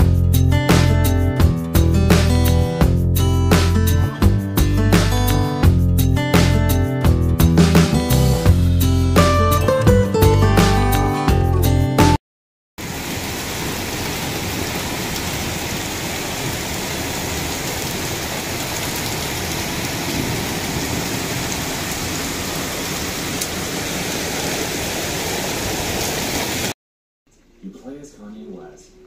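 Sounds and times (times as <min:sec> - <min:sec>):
heavy rain pouring: 0:12.8 - 0:26.8.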